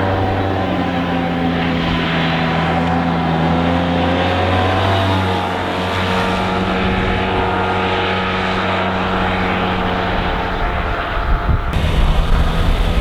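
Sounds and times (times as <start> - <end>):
motorcycle engine running: 11.3 - 13.0.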